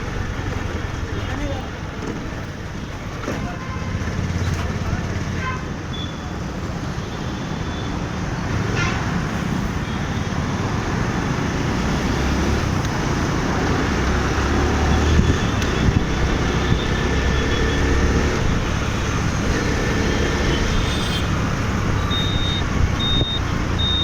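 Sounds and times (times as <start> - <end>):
road traffic noise: 0.0 - 24.0
short high beeps: 22.0 - 24.0.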